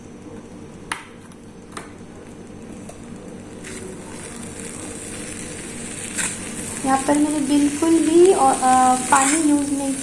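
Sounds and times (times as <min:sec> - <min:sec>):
steady low hum: 0:00.0 - 0:10.0
vegetables sizzling in oil: 0:02.7 - 0:10.0.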